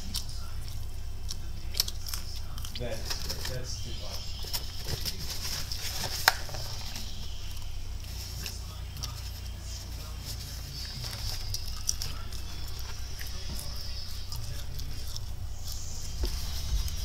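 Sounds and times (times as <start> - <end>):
person chewing food: 0.0 - 17.0
steady low hum: 0.0 - 17.0
paper box handled: 3.0 - 7.2.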